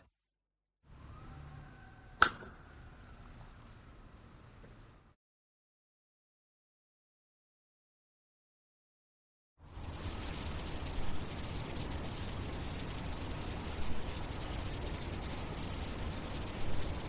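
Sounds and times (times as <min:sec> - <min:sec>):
high-pitched chirring insects: 0:09.7 - 0:17.0.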